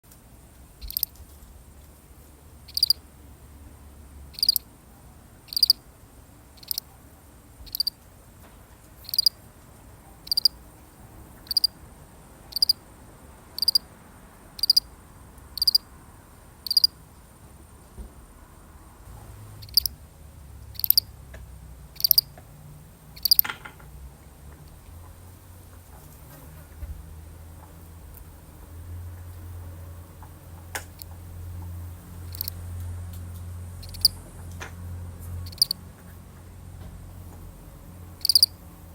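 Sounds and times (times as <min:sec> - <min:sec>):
cricket chirping: 0:00.4 - 0:08.0, 0:09.0 - 0:09.4, 0:10.1 - 0:11.8, 0:12.5 - 0:12.8, 0:13.4 - 0:17.2, 0:19.0 - 0:21.2, 0:21.8 - 0:24.0, 0:27.0 - 0:35.8, 0:37.8 - 0:38.9.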